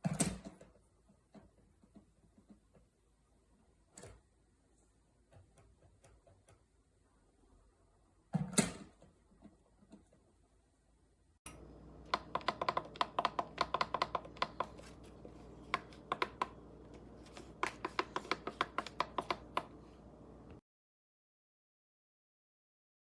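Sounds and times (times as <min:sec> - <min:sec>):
steady low hum: 0:11.5 - 0:20.6
typing on computer keyboard: 0:11.5 - 0:20.6.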